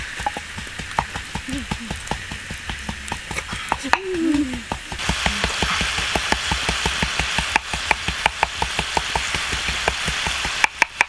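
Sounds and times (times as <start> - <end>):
low bubbling: 0.0 - 10.7
fire popping and crackling: 0.0 - 11.0
food sizzling in a pan: 0.0 - 11.0.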